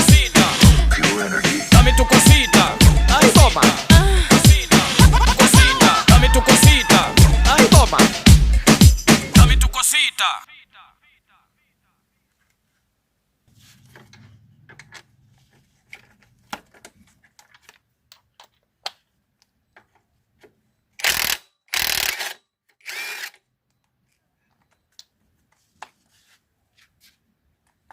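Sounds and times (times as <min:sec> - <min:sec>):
power tool bursts: 0:21.0 - 0:23.4.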